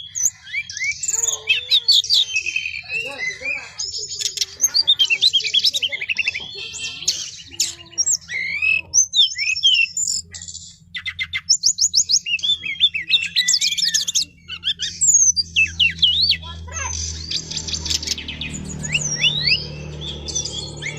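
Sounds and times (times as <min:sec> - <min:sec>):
birds singing trills and whistles: 0:00.0 - 0:20.9
steady low hum: 0:00.0 - 0:20.9.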